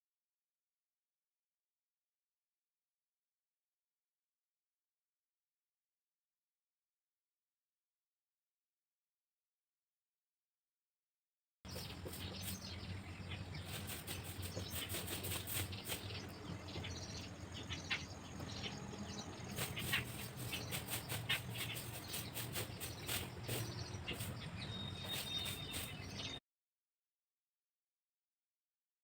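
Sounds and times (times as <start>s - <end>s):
pencil scratching on paper: 19.6s - 24.3s.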